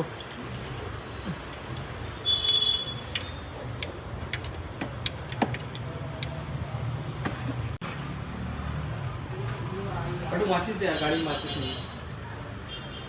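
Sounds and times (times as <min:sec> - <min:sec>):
light metallic clinks: 0:03.0 - 0:06.4.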